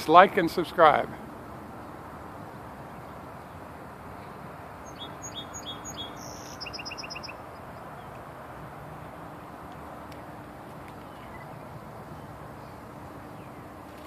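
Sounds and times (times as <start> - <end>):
small bird chirping: 4.2 - 8.2.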